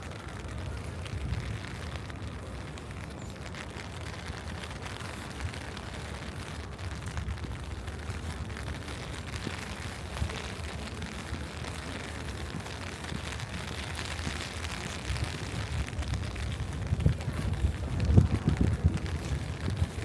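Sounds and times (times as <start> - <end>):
constant low rumble: 0.0 - 20.0
steady rain falling: 0.0 - 20.0.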